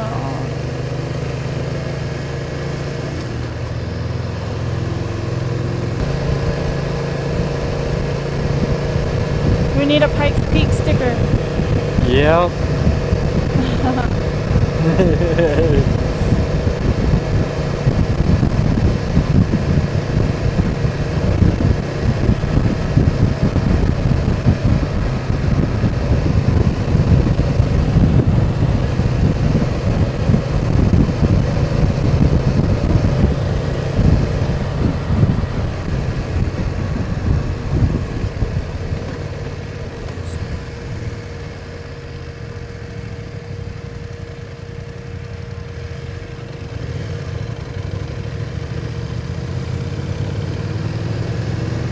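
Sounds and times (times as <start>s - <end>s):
motorcycle engine running: 0.0s - 51.9s
wind buffeting microphone: 5.9s - 41.3s.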